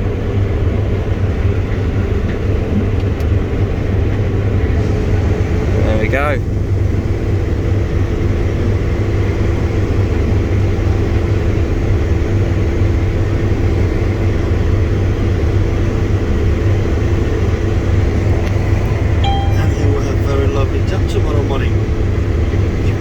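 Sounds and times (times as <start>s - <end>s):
combine harvester engine rumble: 0.1s - 23.0s.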